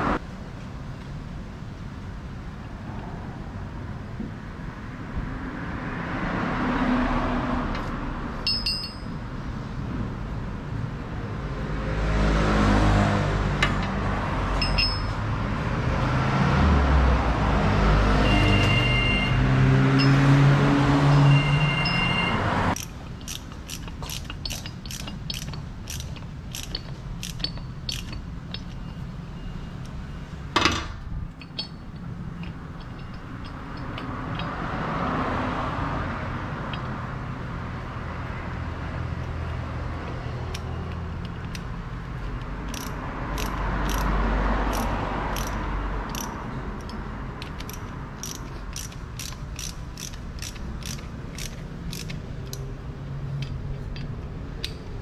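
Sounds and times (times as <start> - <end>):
ratchet wrench clicking: 22.7 - 29.0, 31.4 - 34.7, 36.6 - 37.0, 39.2 - 55.0.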